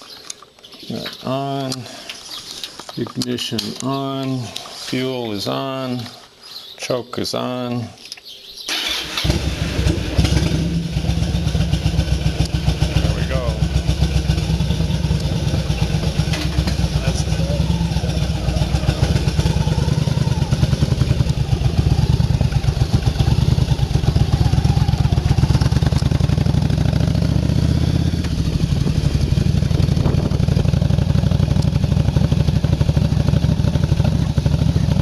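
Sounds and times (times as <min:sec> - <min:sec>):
motorcycle engine running: 0:08.8 - 0:35.0.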